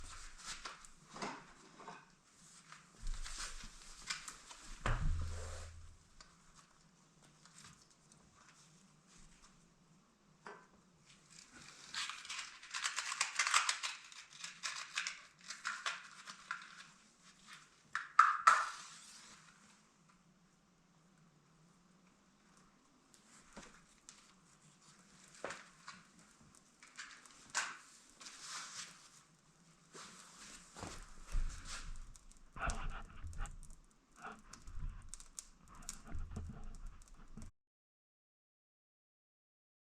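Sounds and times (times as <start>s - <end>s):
wrapping crinkling and tearing: 11.2s - 17.9s, 23.7s - 29.3s
wood fire crackling: 30.4s - 37.5s.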